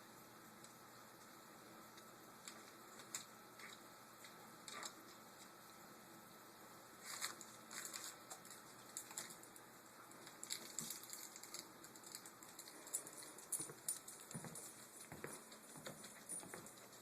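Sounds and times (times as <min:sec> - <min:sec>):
dog claws ticking on hard floor: 0:10.5 - 0:17.0.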